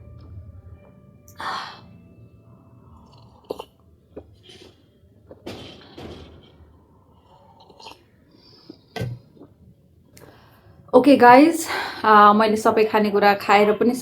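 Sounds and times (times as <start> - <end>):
chewing and mouth noises: 7.3 - 9.6.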